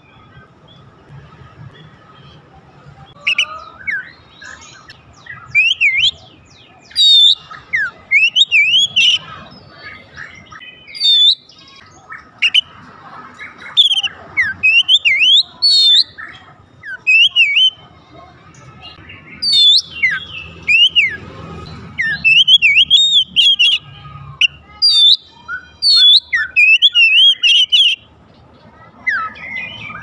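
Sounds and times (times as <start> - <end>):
bird singing whistled phrases: 3.2 - 9.3, 10.5 - 12.7, 13.6 - 17.8, 19.3 - 21.2, 22.0 - 23.8, 24.4 - 28.1.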